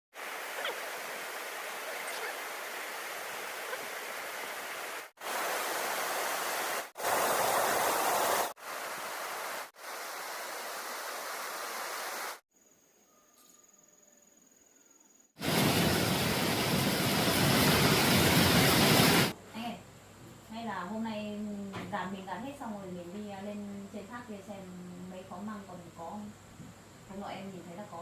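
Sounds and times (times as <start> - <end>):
waterfall and stream rushing: 0.2 - 12.4, 15.4 - 19.3.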